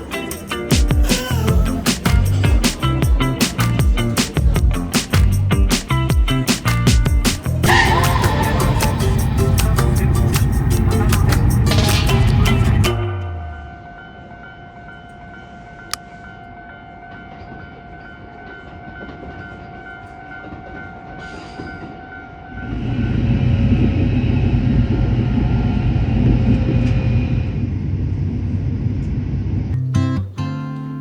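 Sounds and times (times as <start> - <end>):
train low rumble: 7.5 - 14.3, 21.2 - 29.8
low hum: 7.6 - 14.1
train high whine: 7.6 - 29.0.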